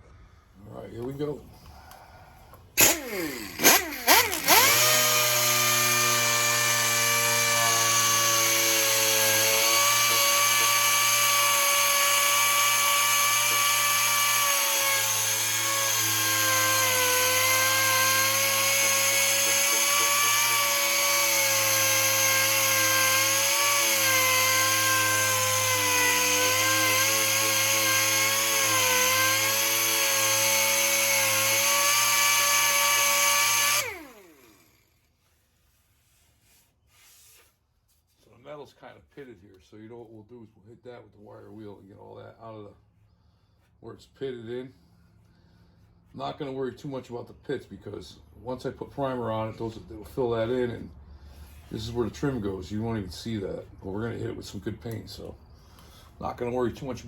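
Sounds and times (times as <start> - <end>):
power sander sanding steel: 2.8 - 37.4.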